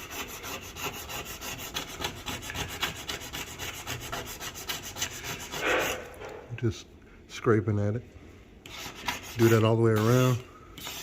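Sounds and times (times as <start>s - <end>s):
scraper rasping on stovetop: 0.0s - 6.2s, 8.6s - 11.0s.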